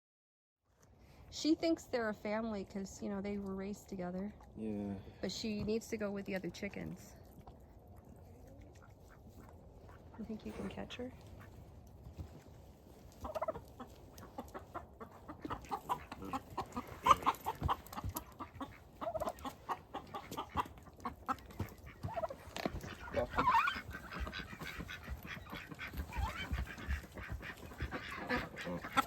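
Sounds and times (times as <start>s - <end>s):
hen clucking and squawking: 7.4s - 29.0s
scuffling and rustling: 9.2s - 29.0s.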